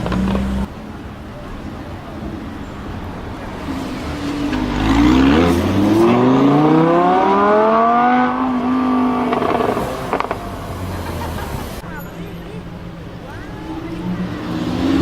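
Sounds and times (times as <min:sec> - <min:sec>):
sports car engine accelerating: 0:00.0 - 0:00.7, 0:03.0 - 0:11.8, 0:13.4 - 0:15.0
exhaust cracks: 0:00.0 - 0:00.8, 0:01.6 - 0:11.9.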